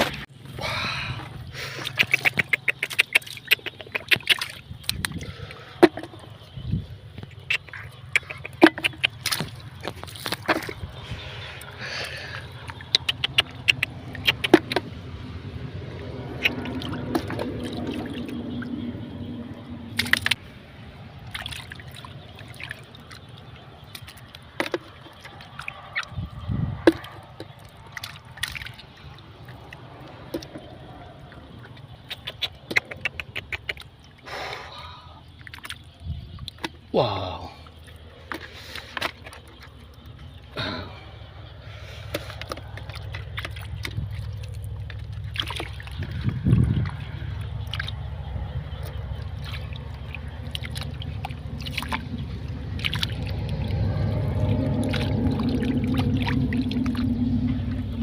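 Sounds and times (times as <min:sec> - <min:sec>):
water sloshing and splashing: 0:00.0 - 0:58.0
sharp clicks and knocks: 0:12.9 - 0:15.0.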